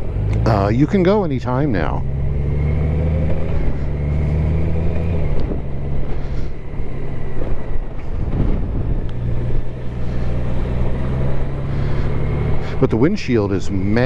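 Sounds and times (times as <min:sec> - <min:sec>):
motorcycle engine running: 0:00.0 - 0:14.0
wind on microphone: 0:06.5 - 0:10.2.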